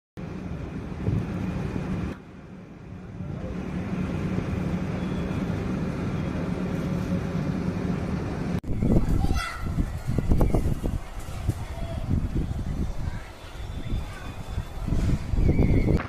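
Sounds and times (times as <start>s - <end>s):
wind buffeting microphone: 8.5s - 16.0s.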